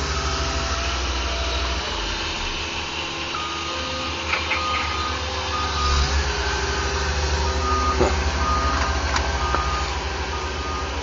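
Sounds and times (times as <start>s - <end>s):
heavy engines rumbling: 0.0s - 11.0s
reversing alarm beeping: 3.3s - 11.0s.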